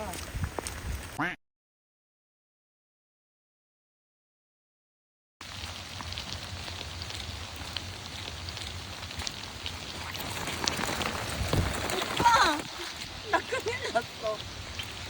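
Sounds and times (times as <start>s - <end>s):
rain hiss: 5.4s - 15.0s
raindrops ticking: 5.4s - 15.0s.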